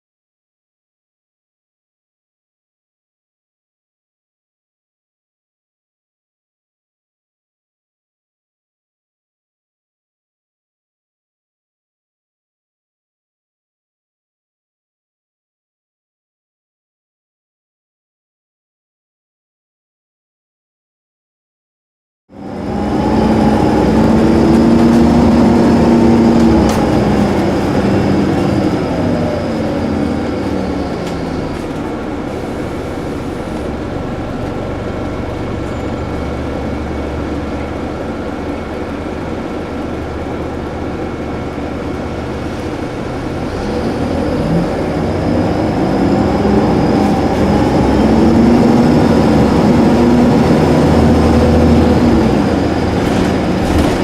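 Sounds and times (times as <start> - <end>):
diesel bus engine: 22.3 - 54.0.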